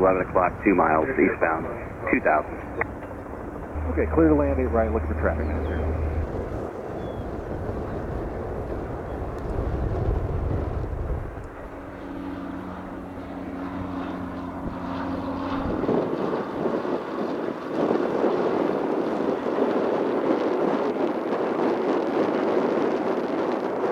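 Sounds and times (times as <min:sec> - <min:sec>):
aircraft engine drone: 0:00.0 - 0:23.9
loud rushing noise: 0:03.6 - 0:06.7.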